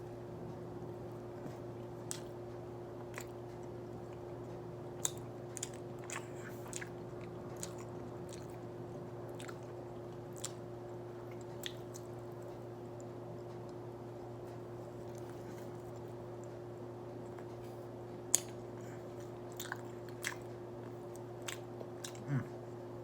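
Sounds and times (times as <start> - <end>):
steady low hum: 0.0 - 23.0
person chewing doughnut: 1.1 - 13.8, 14.8 - 16.6, 17.2 - 22.6.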